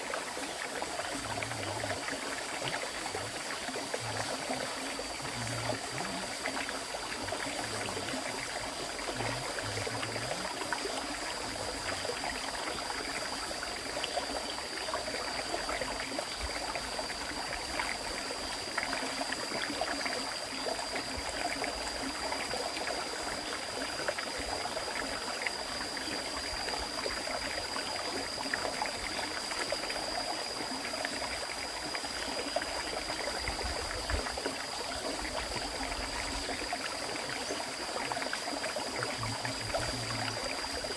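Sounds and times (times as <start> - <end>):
small splashes and trickles: 0.0 - 40.9.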